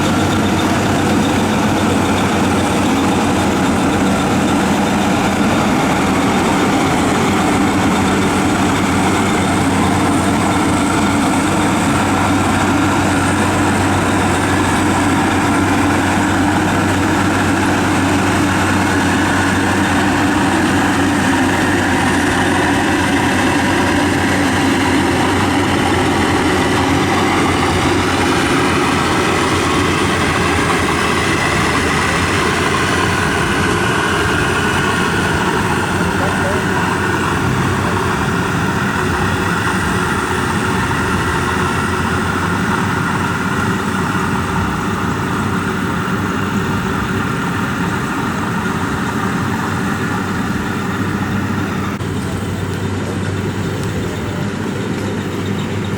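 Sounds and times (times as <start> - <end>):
combine harvester droning: 0.0 - 55.9.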